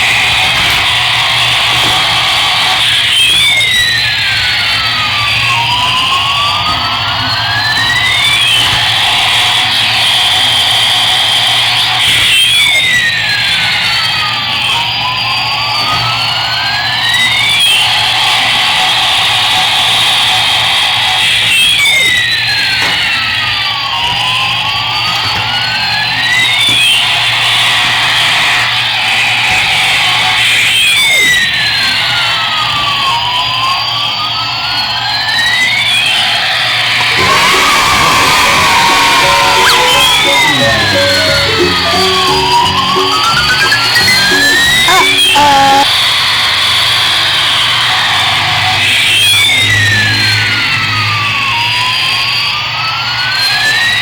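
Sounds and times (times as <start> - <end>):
toy siren-like sweeping tones: 37.0 - 45.9.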